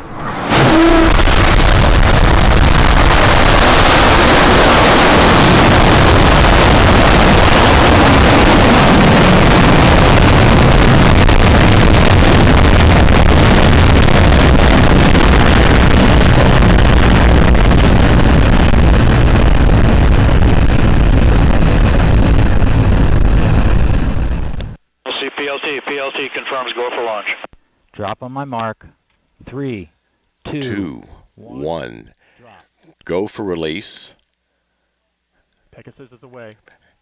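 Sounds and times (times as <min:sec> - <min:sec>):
rocket engines roaring: 0:00.0 - 0:24.8.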